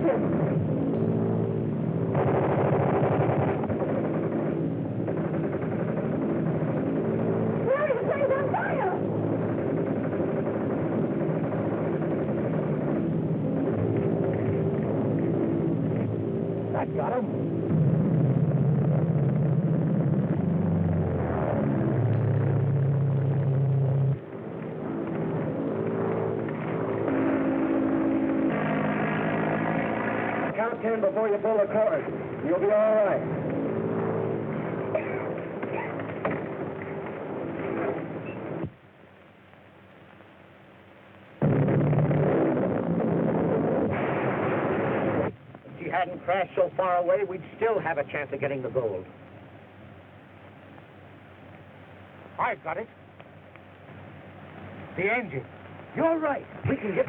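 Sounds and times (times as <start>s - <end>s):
propeller airplane engine droning: 0.0s - 57.0s.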